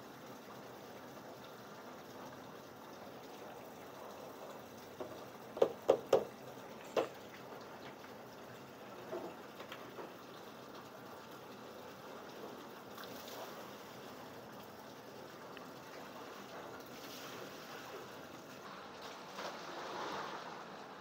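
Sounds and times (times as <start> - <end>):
running water: 0.0 - 21.0
sharp knocks: 5.6 - 6.3.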